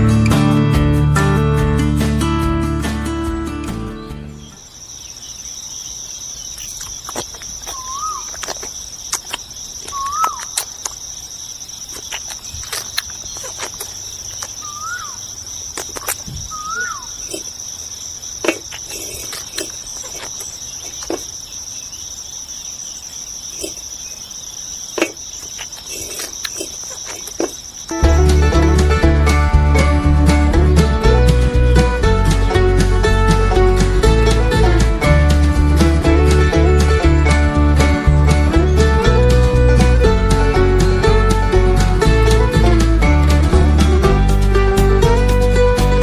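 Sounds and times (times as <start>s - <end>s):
high insect trilling: 4.5s - 29.0s
bird whistles: 7.7s - 8.3s, 9.9s - 10.5s, 14.6s - 15.2s, 16.4s - 17.2s.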